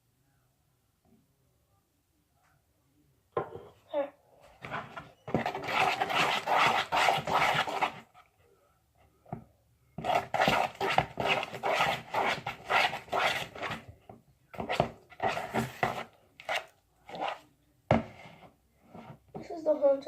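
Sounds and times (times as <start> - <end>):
slime squelching being stirred: 4.5 - 8.4, 10.0 - 13.9, 14.5 - 19.2.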